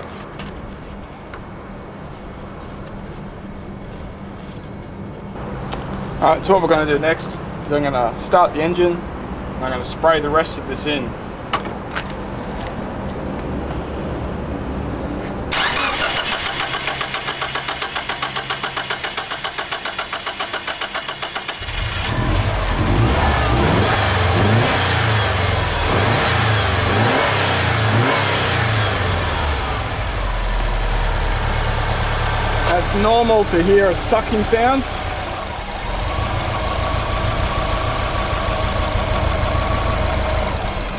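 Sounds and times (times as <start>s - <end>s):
car engine starter cranking: 15.5s - 23.6s, 32.6s - 40.9s
engine running with uneven revs: 15.5s - 40.9s.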